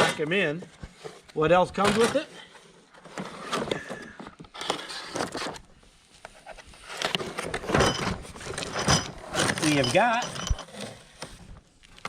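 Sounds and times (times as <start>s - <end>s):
rustling and scraping packaging: 0.0s - 12.0s
metallic clink of small parts: 7.8s - 10.7s.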